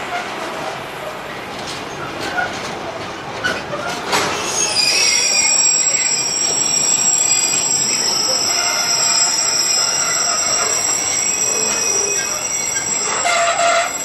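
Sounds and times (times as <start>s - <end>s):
train running noise: 0.0s - 14.0s
high-pitched wheel squeal: 4.4s - 14.0s.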